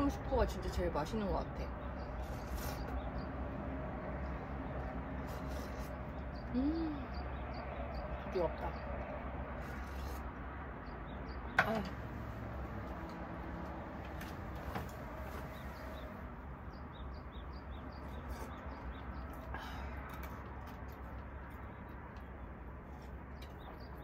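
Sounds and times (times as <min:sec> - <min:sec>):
faint bird chirps: 0:05.3 - 0:08.9.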